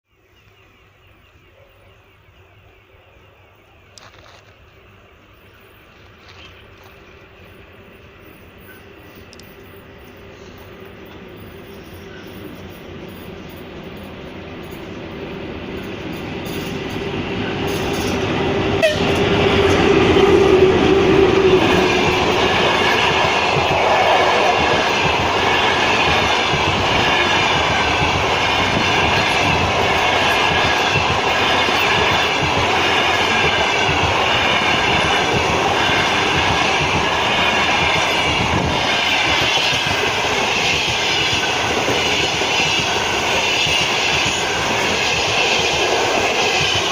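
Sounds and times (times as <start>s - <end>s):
electric locomotive passing: 0.2s - 46.9s
wheels clacking over rail joints: 15.8s - 46.9s.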